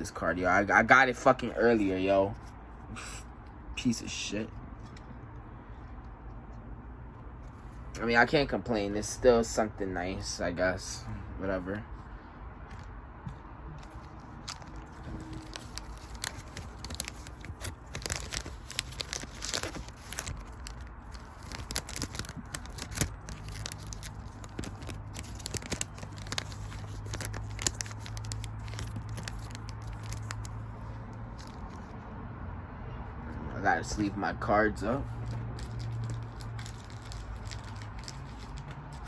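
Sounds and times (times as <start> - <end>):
foil wrappers crinkling and tearing: 13.9 - 31.9, 35.0 - 39.0.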